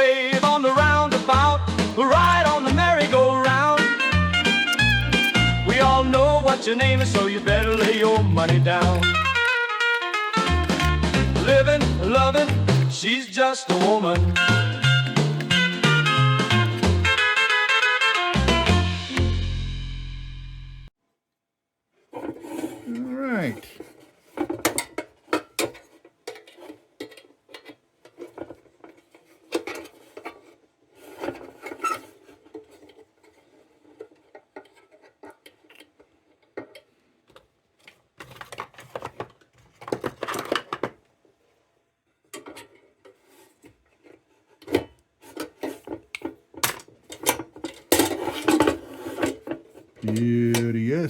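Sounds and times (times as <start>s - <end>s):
metal parts clinking and scraping: 2.0s - 5.7s, 6.9s - 14.0s.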